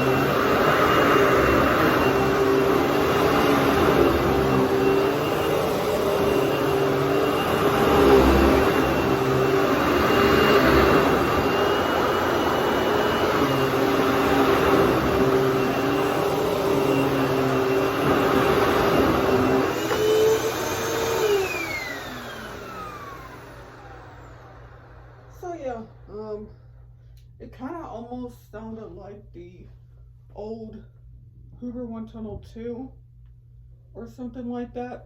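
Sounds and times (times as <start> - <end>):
vacuum motor winding down: 0.0 - 26.3
vacuum cleaner running: 0.0 - 26.5.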